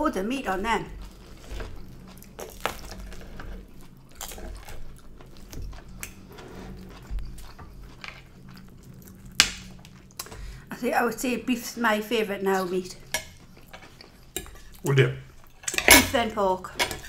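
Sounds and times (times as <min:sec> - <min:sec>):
chewing and biting food: 0:01.0 - 0:10.4.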